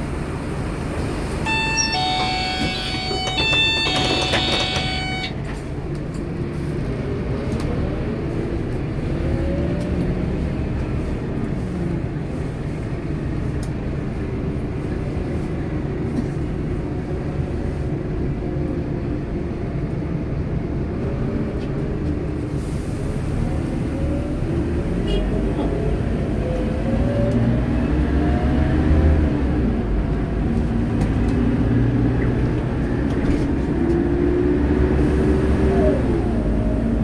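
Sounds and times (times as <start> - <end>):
bus diesel engine running: 0.0 - 37.0
bus bell chime: 1.4 - 5.4.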